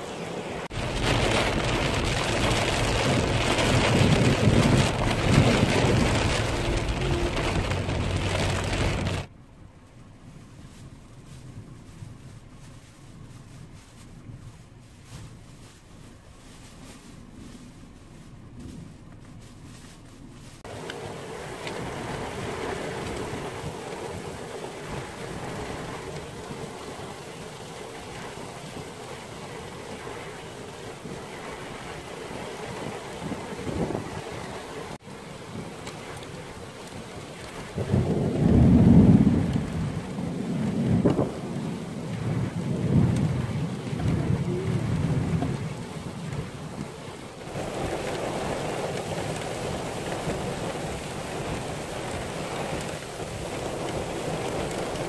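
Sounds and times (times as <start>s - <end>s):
heavy rain: 0.0s - 18.9s, 19.8s - 55.0s
low rumble: 0.6s - 26.7s.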